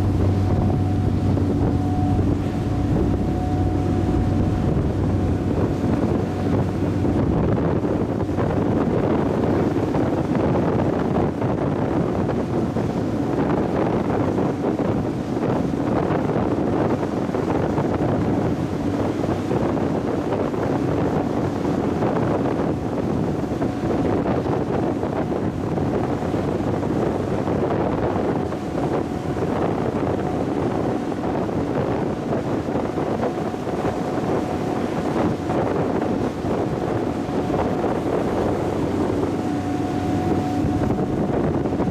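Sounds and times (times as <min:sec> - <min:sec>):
ship engine hum: 0:00.0 - 0:41.9
water rushing past hull: 0:00.0 - 0:41.9
wind buffeting microphone: 0:00.0 - 0:41.9.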